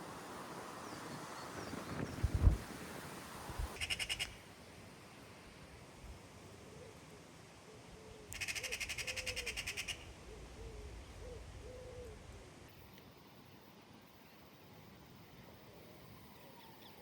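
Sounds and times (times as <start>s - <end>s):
bird hooting calls: 3.8s - 4.4s, 8.0s - 12.2s.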